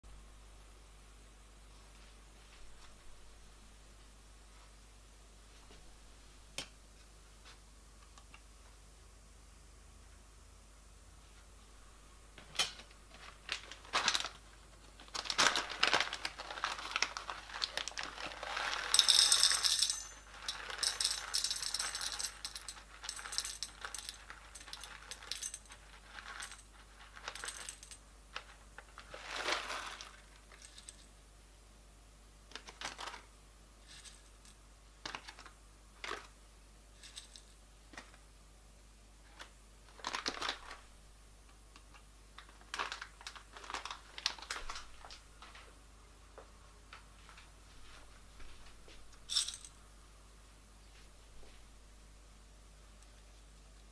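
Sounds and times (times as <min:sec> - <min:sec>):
coffee beans jangling: 0:15.4 - 0:28.6, 0:29.3 - 0:31.1, 0:33.8 - 0:34.6, 0:37.0 - 0:37.6, 0:49.2 - 0:49.8.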